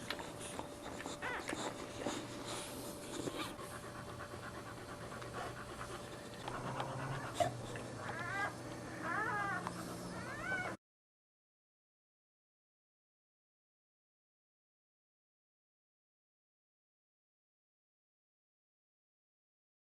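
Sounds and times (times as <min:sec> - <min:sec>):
dog panting rapidly: 0:00.0 - 0:08.5.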